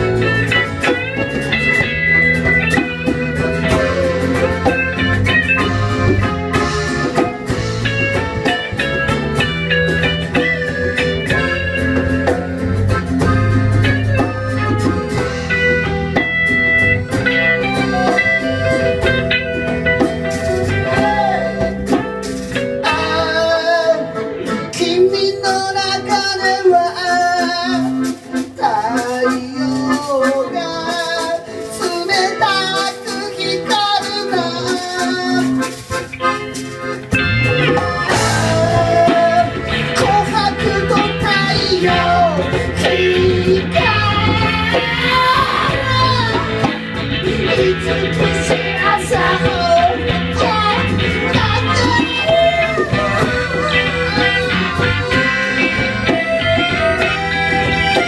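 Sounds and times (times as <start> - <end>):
band playing live: 0.0 - 58.0
person singing: 2.7 - 7.4, 17.6 - 35.9, 37.4 - 58.0.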